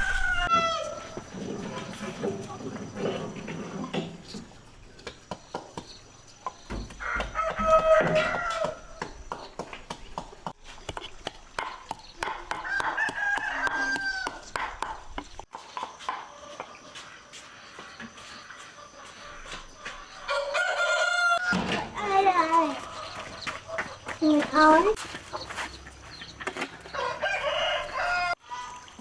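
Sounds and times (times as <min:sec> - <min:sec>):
roosters crowing: 0:00.0 - 0:04.5, 0:06.5 - 0:09.6, 0:11.8 - 0:15.5, 0:18.9 - 0:29.0.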